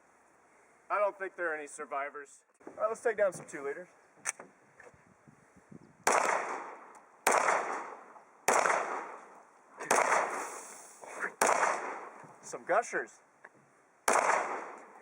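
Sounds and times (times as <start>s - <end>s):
pistol shots with echo: 6.0s - 10.5s, 11.4s - 12.2s, 14.1s - 15.0s.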